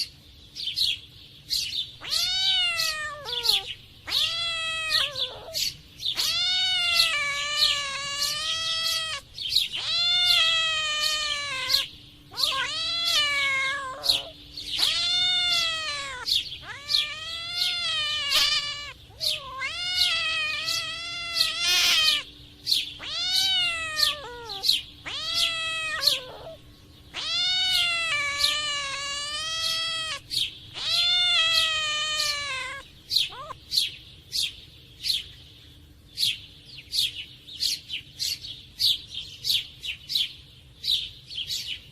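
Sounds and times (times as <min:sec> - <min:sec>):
cats yowling: 0:02.0 - 0:33.6.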